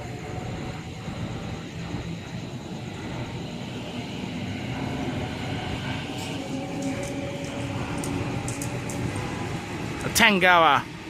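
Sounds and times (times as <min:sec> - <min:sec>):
electric train rumble: 0:00.0 - 0:11.0.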